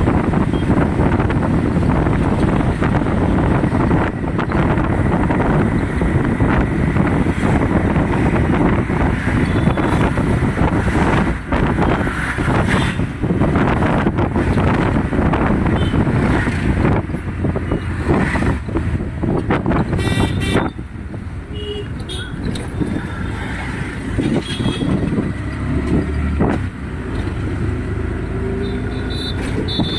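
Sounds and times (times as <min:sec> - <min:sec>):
wind buffeting microphone: 0:00.0 - 0:28.0
moving vehicle rumble: 0:00.0 - 0:29.9.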